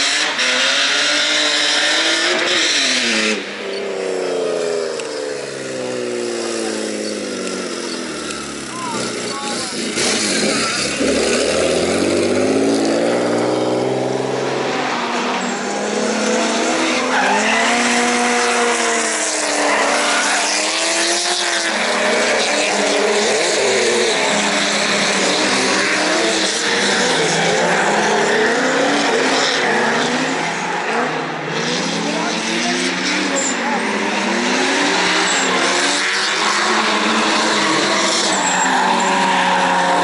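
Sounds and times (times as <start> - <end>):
car engines revving: 0.0 - 40.0
tyres squealing: 6.5 - 11.9, 34.9 - 40.0.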